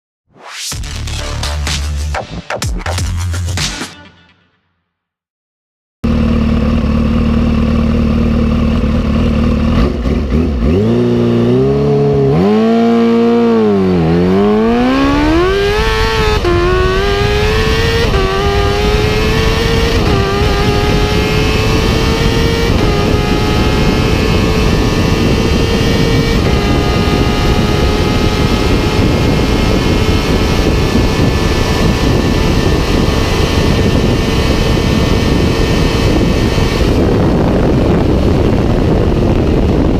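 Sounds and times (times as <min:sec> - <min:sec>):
motorcycle engine accelerating: 0:06.0 - 0:39.9
wind rush: 0:11.5 - 0:39.9.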